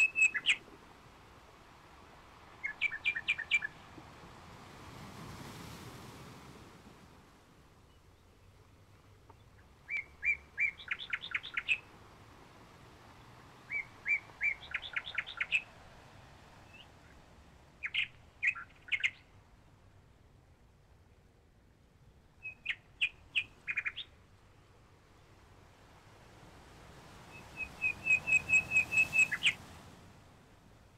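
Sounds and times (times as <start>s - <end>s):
bird chirping: 0.0s - 0.6s, 2.6s - 3.8s, 9.3s - 11.9s, 13.7s - 15.7s, 17.8s - 19.3s, 22.4s - 24.2s, 27.3s - 29.6s.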